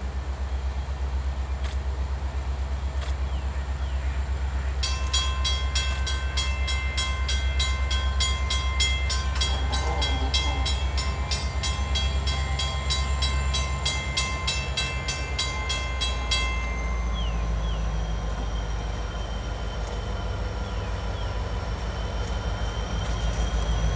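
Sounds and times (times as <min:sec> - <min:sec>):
diesel freight train passing: 0:00.0 - 0:23.9
bell ringing rapidly: 0:04.8 - 0:17.4.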